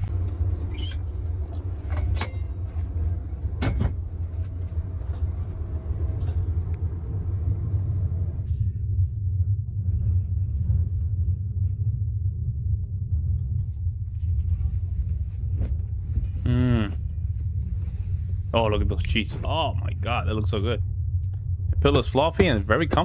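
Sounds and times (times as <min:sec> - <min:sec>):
vehicle low rumble: 0:00.0 - 0:23.0.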